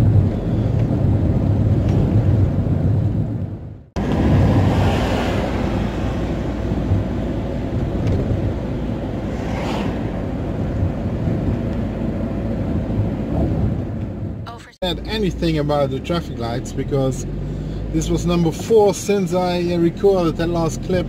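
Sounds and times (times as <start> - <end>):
engine and tyre rumble: 0.0 - 21.0
rushing noise: 3.7 - 14.4.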